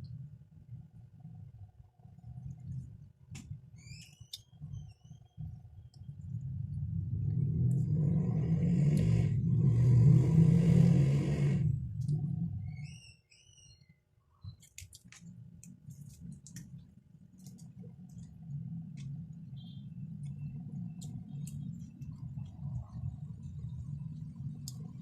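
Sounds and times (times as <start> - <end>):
steady low hum: 4.4 - 13.0, 15.2 - 25.0.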